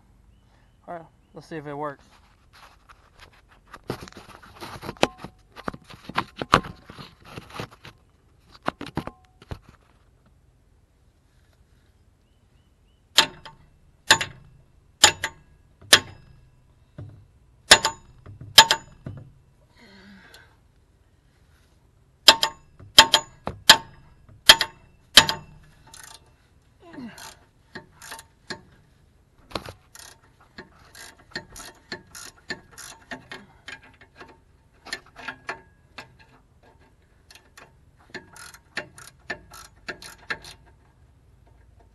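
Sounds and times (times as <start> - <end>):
hammer striking metal: 13.2 - 16.5, 17.7 - 19.2, 22.2 - 25.7
light clattering and knocking: 13.2 - 19.5.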